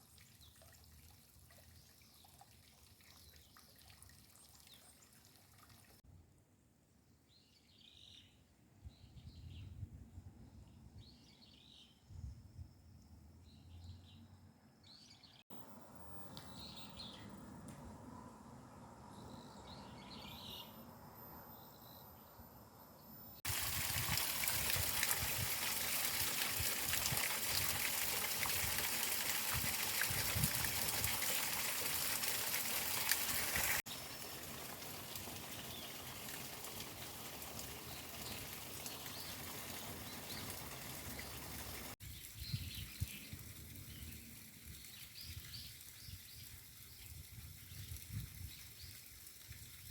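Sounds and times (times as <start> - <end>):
small birds chirping: 16.2 - 17.7, 19.1 - 23.2, 37.6 - 49.2.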